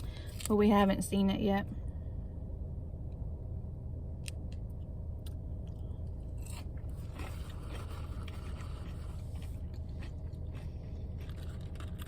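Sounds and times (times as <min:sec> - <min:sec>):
steady low hum: 0:00.0 - 0:12.0
chewing and biting food: 0:05.7 - 0:12.0.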